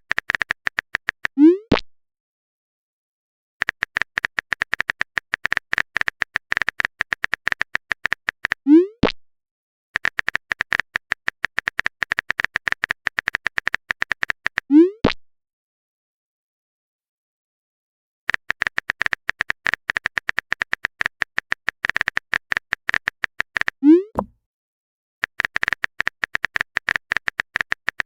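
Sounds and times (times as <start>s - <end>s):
typing clicks: 10.0s - 14.6s, 18.3s - 24.3s, 25.2s - 28.0s.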